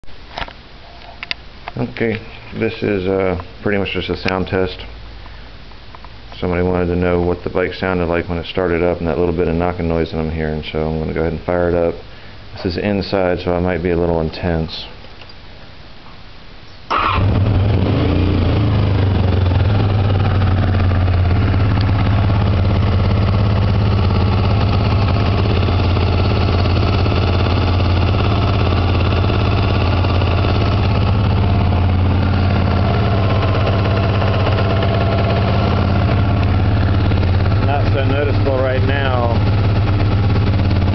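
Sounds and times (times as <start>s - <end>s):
motorcycle engine starting and idling: 16.9s - 40.9s.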